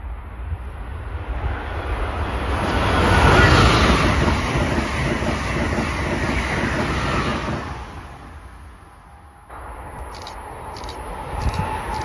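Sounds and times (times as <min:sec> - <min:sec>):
train rushing past on rails: 0:00.0 - 0:12.0
wind rumbling on microphone: 0:09.5 - 0:12.0.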